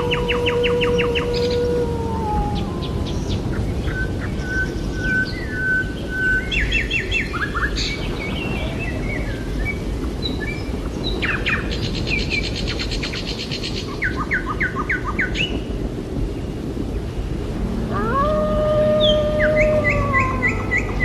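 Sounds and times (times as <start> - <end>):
steady low background noise: 17.4 - 21.0
whistled bird note: 17.6 - 21.0.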